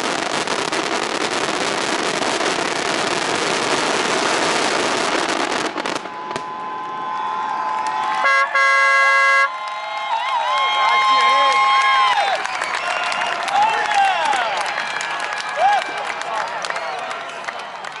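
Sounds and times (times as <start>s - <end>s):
fireworks crackling and popping: 0.0s - 9.5s
vehicle horns: 6.0s - 7.2s, 8.2s - 9.5s.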